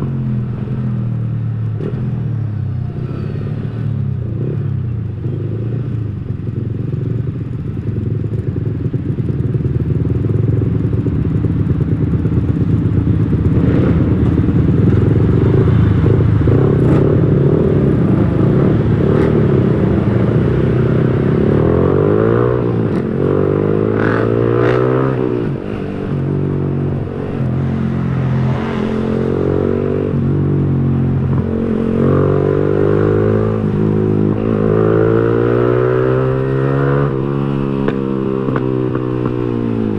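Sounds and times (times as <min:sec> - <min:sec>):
motorcycle engine revving: 0:08.2 - 0:39.9.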